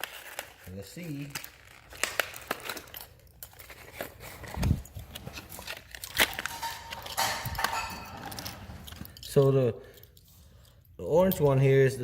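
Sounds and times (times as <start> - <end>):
plastic packaging rustling: 0.0 - 9.3.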